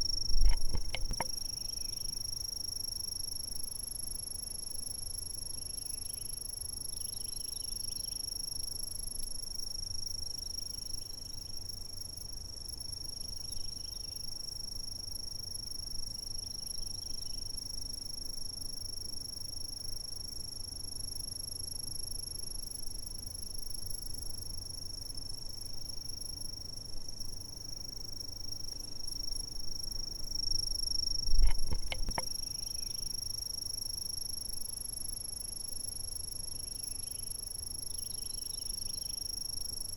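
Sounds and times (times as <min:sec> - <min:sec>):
insects trilling: 0:00.0 - 0:03.6, 0:09.6 - 0:20.0, 0:22.2 - 0:39.9
sharp clicks: 0:00.4 - 0:01.3, 0:31.4 - 0:32.3.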